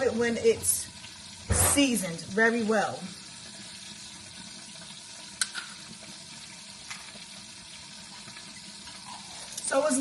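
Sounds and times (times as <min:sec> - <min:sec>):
sauce simmering in a pot: 0:00.0 - 0:10.0.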